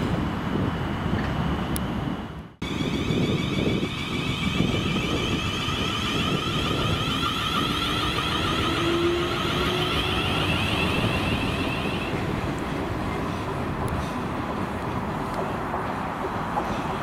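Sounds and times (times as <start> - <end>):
high hum: 0.0 - 14.4
train rumbling: 0.0 - 17.0
faint rising tone: 2.6 - 12.5.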